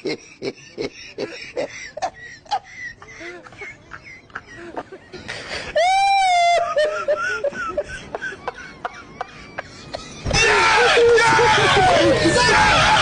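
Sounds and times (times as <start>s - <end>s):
person whimpering and giggling: 0.0s - 10.3s.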